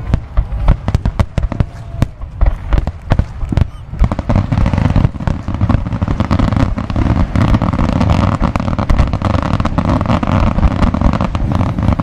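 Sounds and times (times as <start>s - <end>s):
firework crackle: 0.0s - 12.0s
firework shells bursting: 0.0s - 12.0s.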